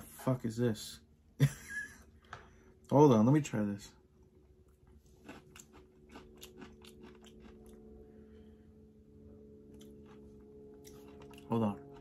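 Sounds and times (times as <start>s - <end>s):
low steady hum: 0.0s - 12.0s
person chewing food: 4.2s - 8.4s, 9.6s - 12.0s.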